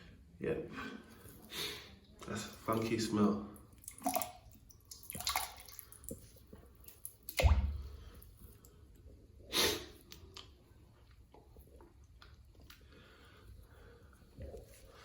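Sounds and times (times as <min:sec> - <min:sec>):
wet squelch: 0:03.6 - 0:15.0.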